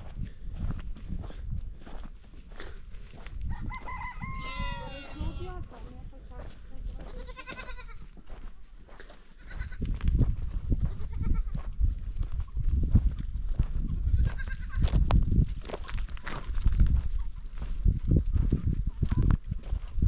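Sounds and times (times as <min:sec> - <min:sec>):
goats bleating: 0:04.4 - 0:05.7, 0:07.0 - 0:08.1, 0:09.3 - 0:09.8, 0:10.9 - 0:11.6, 0:14.0 - 0:14.8
steady low rumble: 0:09.7 - 0:19.8.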